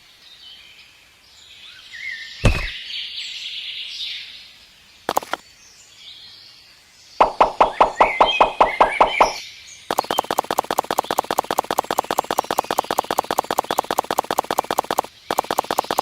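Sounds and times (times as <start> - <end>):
small birds chirping: 0.1 - 16.0
heavy thump: 2.4 - 2.8
quick even knocks: 2.4 - 2.8
sharp clicks: 5.1 - 5.4, 7.2 - 16.0.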